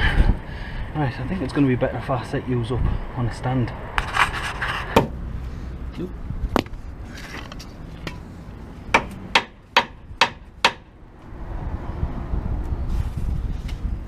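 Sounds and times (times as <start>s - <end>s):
low rumble: 11.0s - 14.0s.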